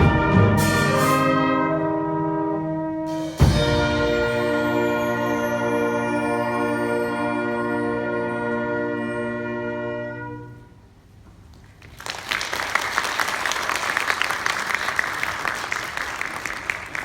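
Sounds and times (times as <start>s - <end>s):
wind band chord: 0.0s - 10.9s
audience applause: 11.7s - 17.0s.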